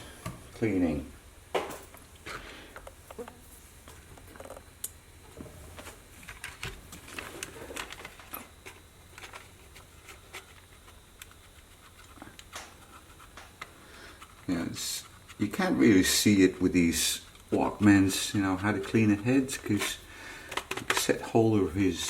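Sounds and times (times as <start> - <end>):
small clicks taps and scrapes: 5.8 - 15.6, 19.7 - 21.2.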